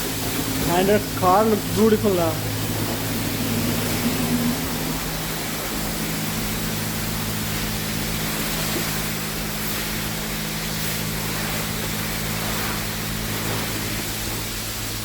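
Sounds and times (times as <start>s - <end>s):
low hum: 0.0s - 15.0s
wand spraying water on car: 0.0s - 15.0s.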